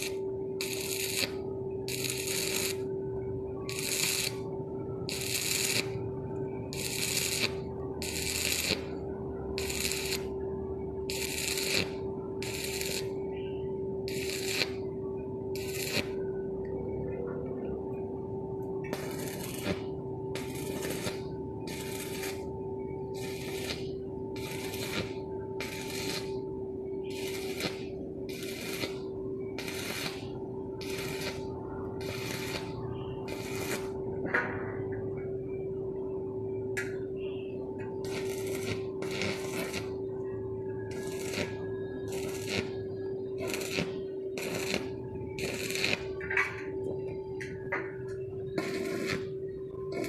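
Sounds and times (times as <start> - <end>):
welding arc sizzling: 0.0 - 2.9, 3.6 - 10.4, 11.0 - 14.9, 15.5 - 16.2, 18.7 - 34.0, 37.9 - 40.0, 40.9 - 46.7, 48.5 - 49.3
steady hum: 0.0 - 50.0.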